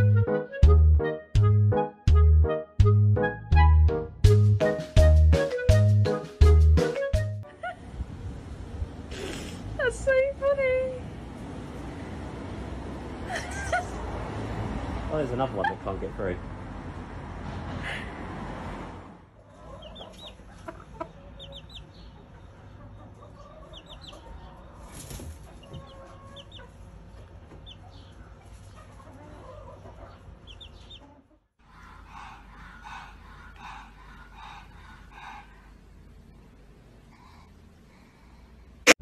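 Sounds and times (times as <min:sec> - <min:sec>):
poultry chirping: 0:19.4 - 0:35.6
clucking calls: 0:19.5 - 0:24.7, 0:25.4 - 0:35.6.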